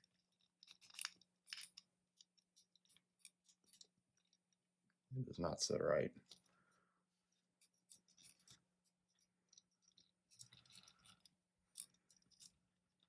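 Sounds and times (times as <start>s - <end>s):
plastic parts clicking and scraping: 0.0s - 4.6s, 7.3s - 13.0s.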